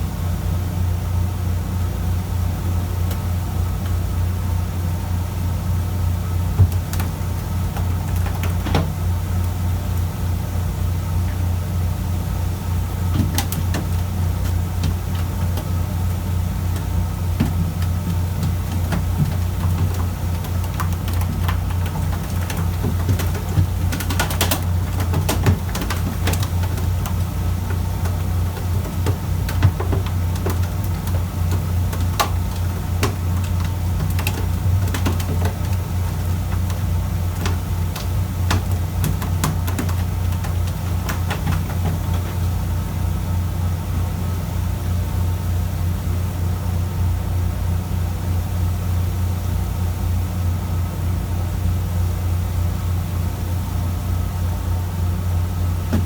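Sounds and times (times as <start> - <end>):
sharp clicks and knocks: 6.6 - 10.1, 13.1 - 42.8.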